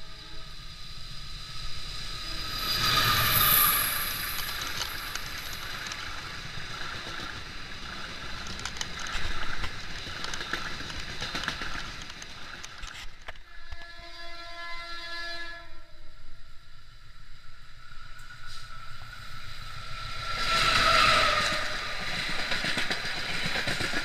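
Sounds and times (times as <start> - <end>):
train wheels on rails: 0.0 - 14.1, 17.6 - 24.0
rail joint clicks: 2.2 - 14.1, 18.0 - 24.0
locomotive horn blast: 13.5 - 15.9.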